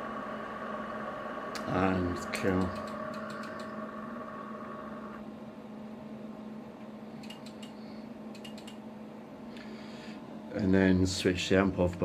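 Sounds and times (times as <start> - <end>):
high electrical whine: 0.0 - 5.3
low electrical hum: 0.0 - 12.0
light clicks: 2.5 - 3.7, 7.2 - 8.8.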